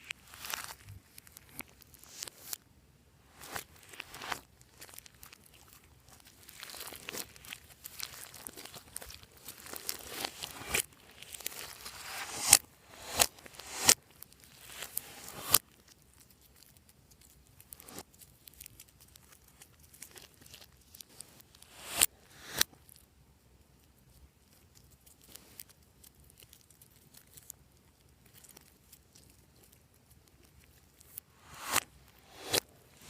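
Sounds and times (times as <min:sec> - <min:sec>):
slime crackling stickily: 0:03.6 - 0:12.2, 0:13.7 - 0:21.7.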